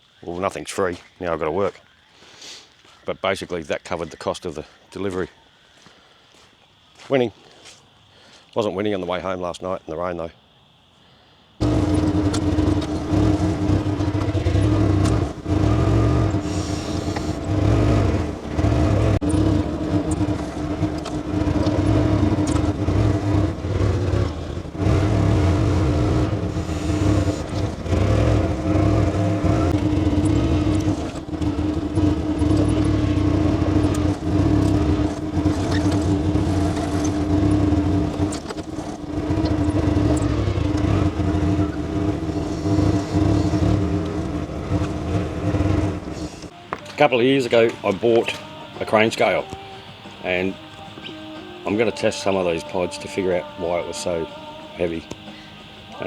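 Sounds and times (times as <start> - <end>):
road noise: 11.6 - 56.0
vehicle engine drone: 11.6 - 56.0.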